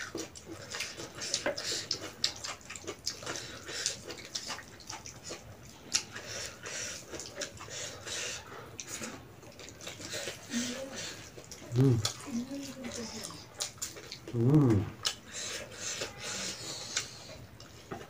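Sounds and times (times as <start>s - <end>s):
wet chewing and lip-smacking: 0.0s - 18.0s.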